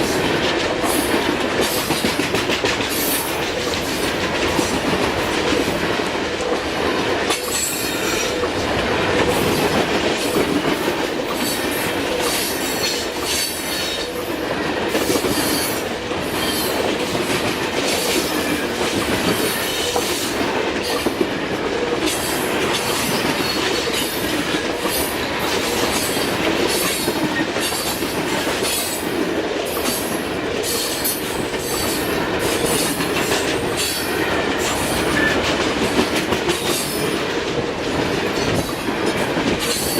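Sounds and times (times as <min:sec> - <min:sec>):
wheels clicking over rail joints: 0:00.0 - 0:39.9
train wheels squealing: 0:07.3 - 0:08.5, 0:11.4 - 0:16.8, 0:29.8 - 0:35.4.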